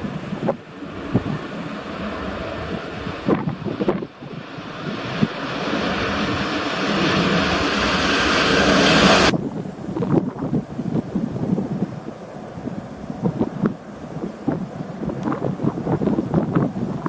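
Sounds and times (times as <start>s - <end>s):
jet airliner engines rushing: 0.0s - 11.4s
wind buffeting microphone: 0.0s - 17.0s.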